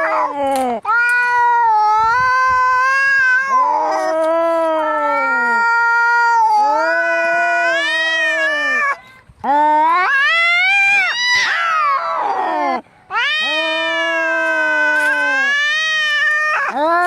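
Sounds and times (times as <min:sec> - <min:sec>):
cat yowling: 0:00.0 - 0:09.0, 0:09.9 - 0:17.0.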